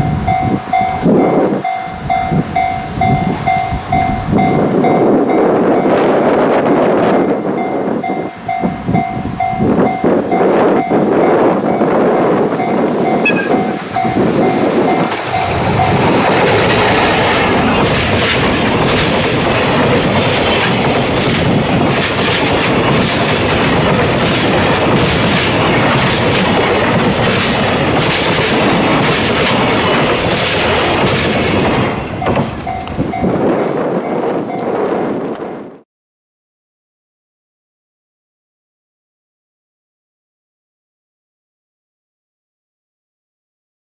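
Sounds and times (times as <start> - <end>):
freight train rumbling past: 0.0 - 35.7
wheels clacking over rail joints: 11.7 - 33.3
pulsing two-pitch tone: 13.0 - 16.1.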